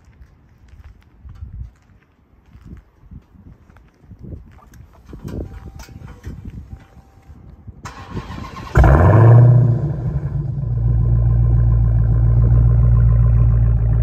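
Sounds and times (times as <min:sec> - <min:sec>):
car engine starting and idling: 0:07.8 - 0:14.0.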